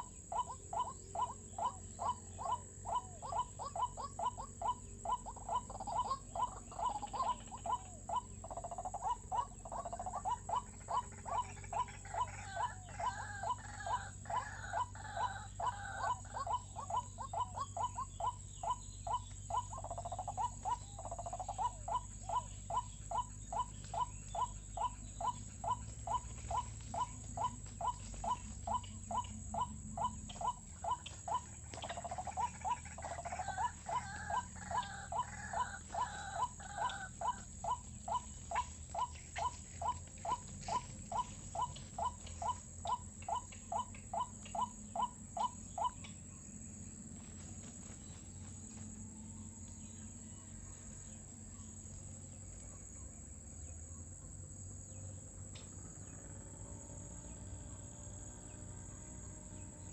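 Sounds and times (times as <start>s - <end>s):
higher tangled bird call: 0.0s - 46.0s.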